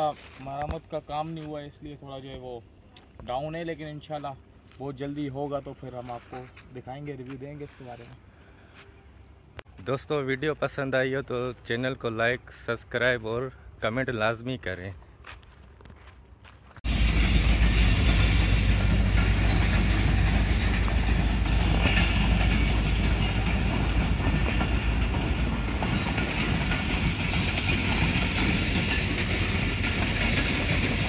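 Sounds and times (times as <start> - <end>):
passenger train rumbling past: 16.8 - 31.0.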